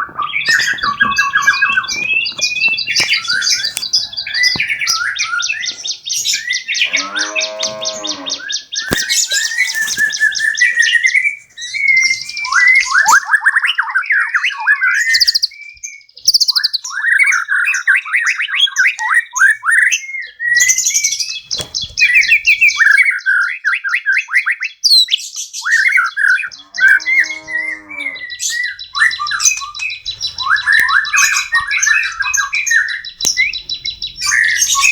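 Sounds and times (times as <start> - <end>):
low drawn-out bird call: 0.0 - 13.2, 25.7 - 34.9
songbirds trilling and chirping: 0.0 - 34.9.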